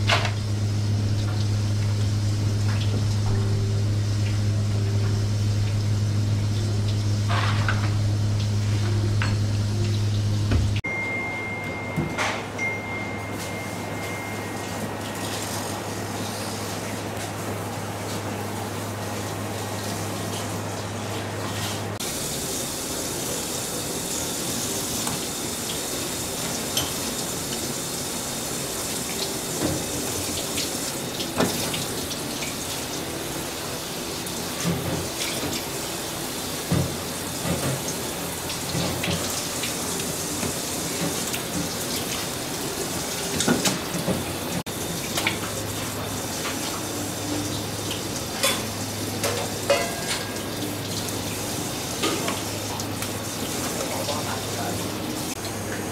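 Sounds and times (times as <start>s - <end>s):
tap water running: 0.0s - 10.8s, 12.6s - 55.9s
low hum: 0.0s - 12.0s.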